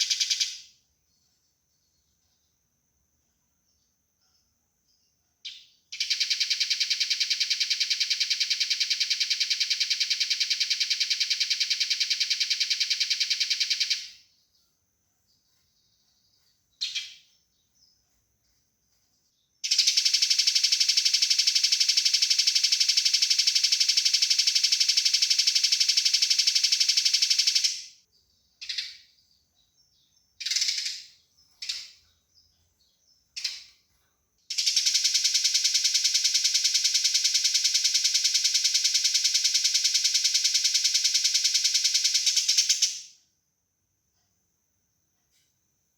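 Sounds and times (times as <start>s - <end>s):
sparrow pulsed rattle calls: 0.0s - 0.8s, 4.3s - 14.4s, 15.4s - 33.8s, 34.5s - 43.2s
sparrow chirps: 0.0s - 2.6s, 3.8s - 14.7s, 15.3s - 43.1s.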